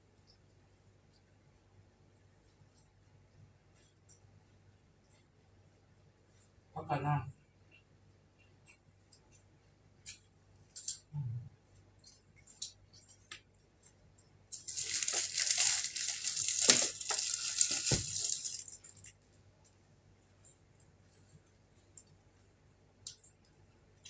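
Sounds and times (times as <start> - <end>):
crinkling and rustling: 12.1 - 19.8.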